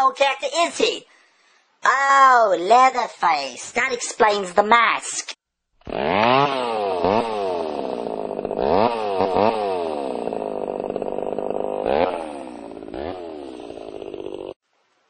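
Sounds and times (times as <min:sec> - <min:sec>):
chainsaw revving: 0:05.8 - 0:14.6.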